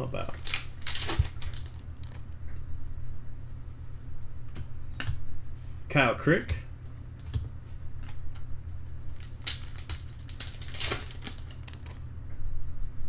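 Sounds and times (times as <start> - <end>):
cards and wrappers rustling: 0.0 - 2.3, 8.9 - 12.1.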